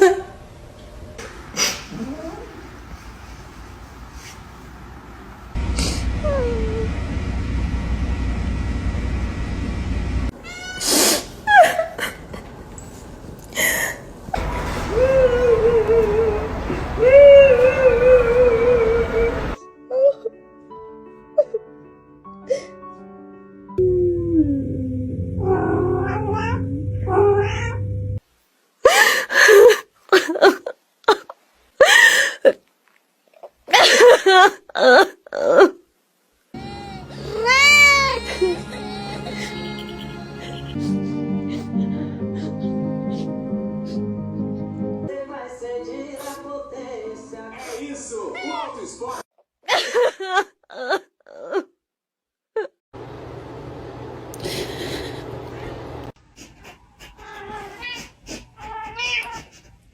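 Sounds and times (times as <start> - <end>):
low background hum: 5.2 - 10.6, 36.5 - 41.1, 53.0 - 59.9
steady low hum: 5.6 - 10.3, 23.8 - 28.2
cat meowing: 10.4 - 11.2, 25.4 - 27.8, 57.2 - 59.5
cat yowling: 10.4 - 11.2, 25.4 - 27.8, 57.1 - 59.6.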